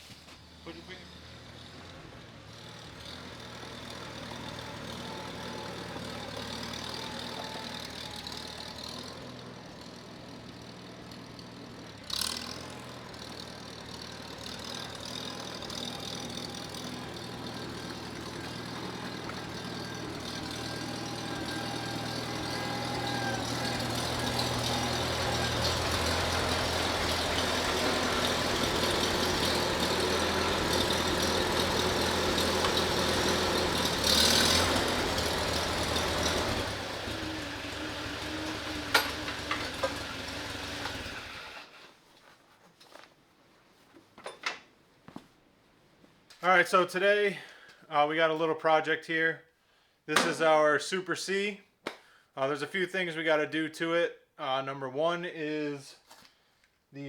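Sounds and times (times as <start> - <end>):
tractor engine idling: 0.0 - 41.7.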